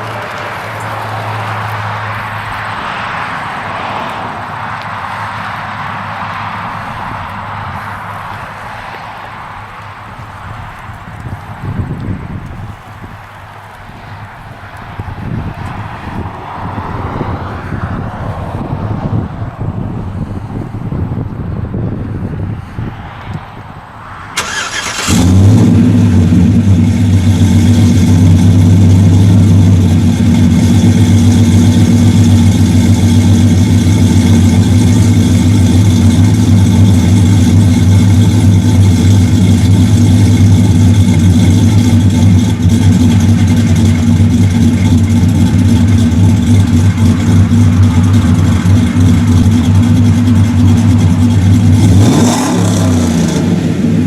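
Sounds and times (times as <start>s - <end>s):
loud engine running: 24.4s - 54.0s.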